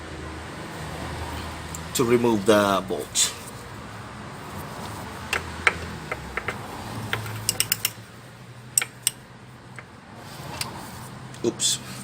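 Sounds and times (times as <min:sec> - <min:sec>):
socket wrench clicking on metal: 0:05.3 - 0:08.0, 0:08.8 - 0:09.2.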